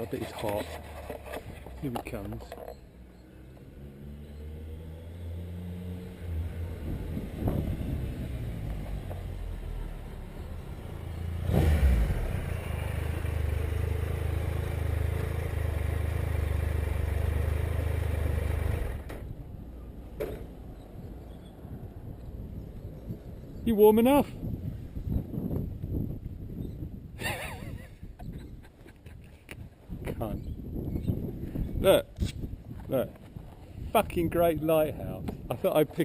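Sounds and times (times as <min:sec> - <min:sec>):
motorcycle engine: 0:02.7 - 0:19.4.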